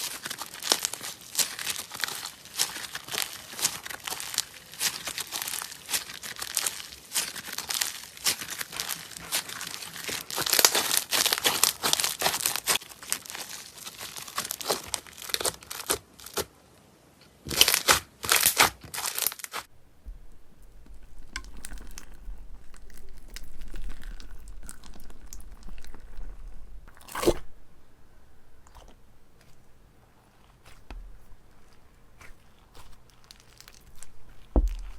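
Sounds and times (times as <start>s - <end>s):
slime crackling and popping: 17.6s - 34.9s
low hum: 19.7s - 34.9s.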